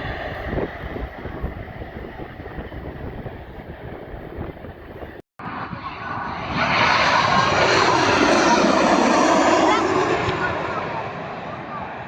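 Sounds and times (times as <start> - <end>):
wind rumble on microphone: 0.0 - 6.7
jet airliner engine roar: 0.0 - 12.0.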